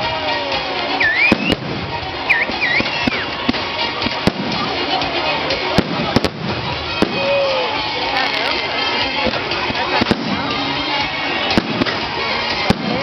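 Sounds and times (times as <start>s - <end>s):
background music: 0.0s - 13.0s
background noise: 0.0s - 13.0s
firecrackers banging: 0.0s - 13.0s.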